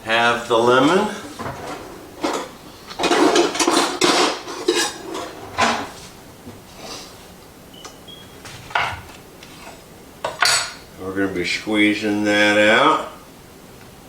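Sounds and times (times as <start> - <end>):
dishes and utensils clattering: 0.9 - 6.0, 8.7 - 10.9.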